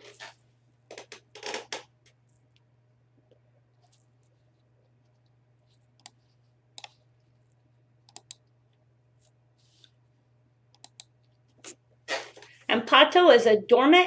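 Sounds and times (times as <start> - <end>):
faint low hum: 0.0 - 14.0
computer mouse clicks: 5.1 - 6.2, 6.8 - 7.0, 8.0 - 8.6, 10.7 - 11.4.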